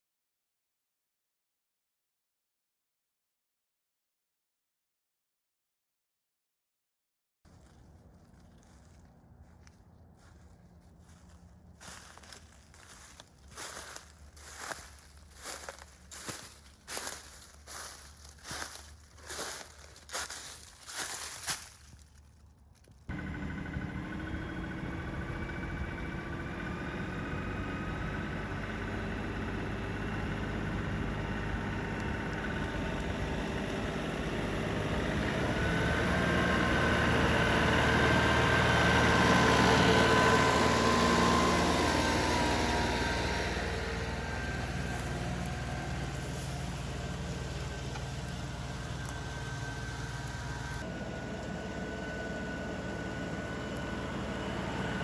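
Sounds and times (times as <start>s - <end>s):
diesel tractor engine running: 7.5s - 55.0s.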